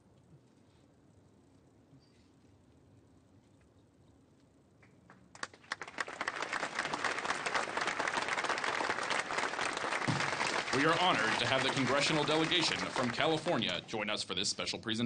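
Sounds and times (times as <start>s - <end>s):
audience applause: 5.3s - 13.9s.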